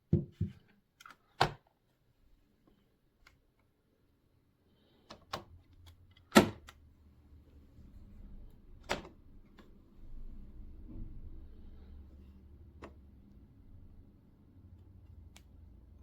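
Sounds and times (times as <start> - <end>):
low steady hum: 5.6 - 16.0.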